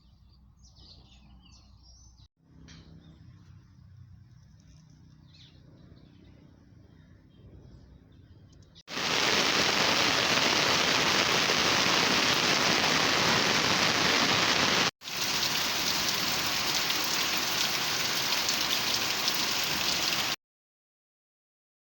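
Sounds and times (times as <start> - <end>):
steady rain falling: 8.9 - 20.4.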